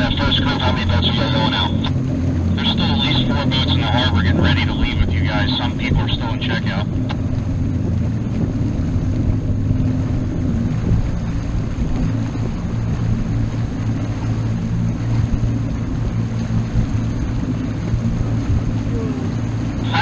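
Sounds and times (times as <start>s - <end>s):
motorboat engine running: 0.0s - 20.0s
wind noise: 7.2s - 13.6s.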